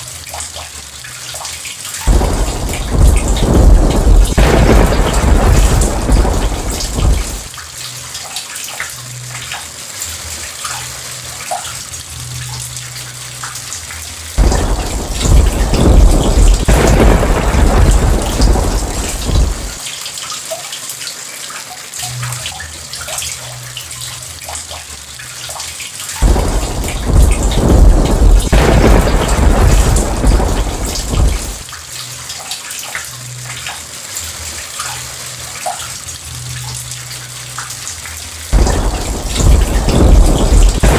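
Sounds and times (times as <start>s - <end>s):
steady rain: 0.0s - 40.9s
thunder rolling: 2.1s - 7.5s, 14.4s - 19.8s, 26.2s - 31.7s, 38.5s - 40.9s.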